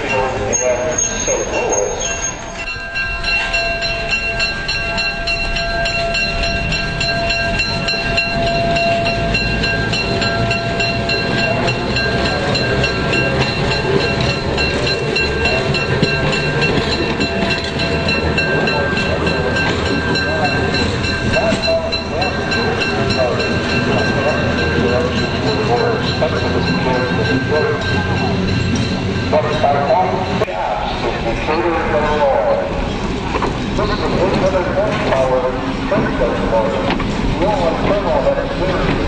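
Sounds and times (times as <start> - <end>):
streetcar whine and rumble: 0.0 - 39.0.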